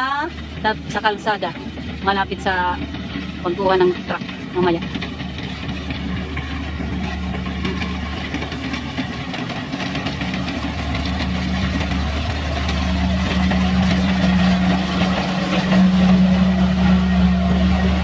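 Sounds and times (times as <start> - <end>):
diesel engine humming: 0.0 - 18.0.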